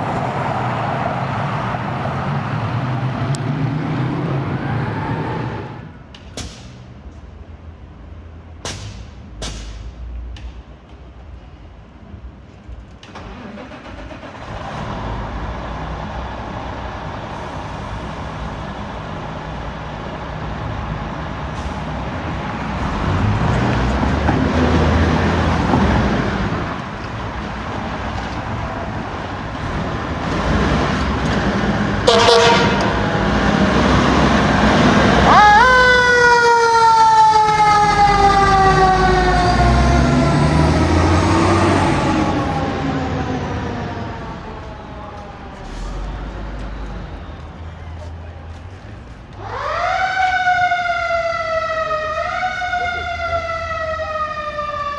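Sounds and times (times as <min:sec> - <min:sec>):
fire truck engine: 0:00.0 - 0:54.9
road noise: 0:00.0 - 0:54.9
siren: 0:03.8 - 0:06.0, 0:32.0 - 0:46.7, 0:49.4 - 0:54.9
horn blast: 0:31.8 - 0:36.1.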